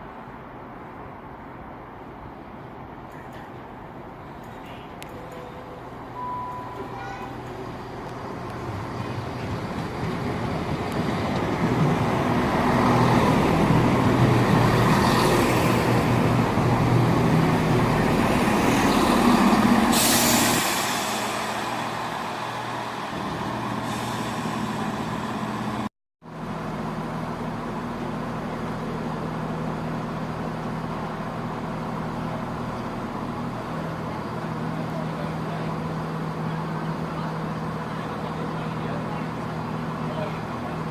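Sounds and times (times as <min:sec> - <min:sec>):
diesel train engine running: 0:02.8 - 0:40.9
sharp hiss of air: 0:19.9 - 0:21.8.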